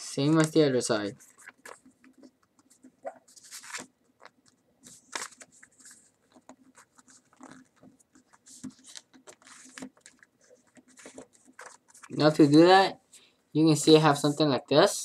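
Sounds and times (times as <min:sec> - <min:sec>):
paper being folded and creased: 0:01.2 - 0:12.6.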